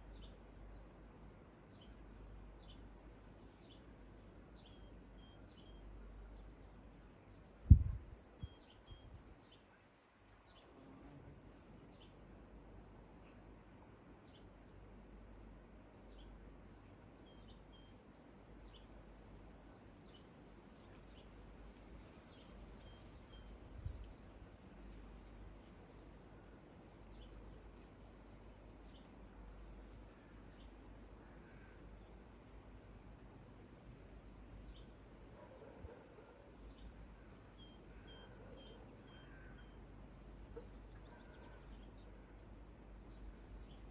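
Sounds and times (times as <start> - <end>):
crickets trilling: 0.0 - 43.9.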